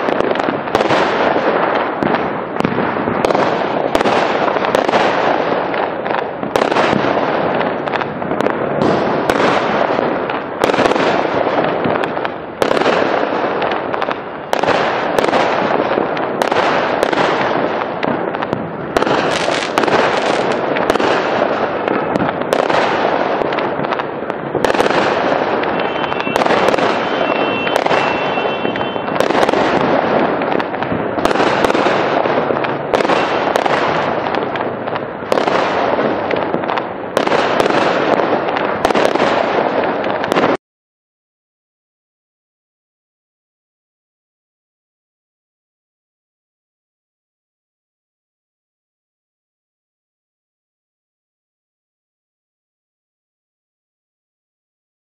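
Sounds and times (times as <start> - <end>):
fireworks bangs and crackling: 0.0 - 40.6.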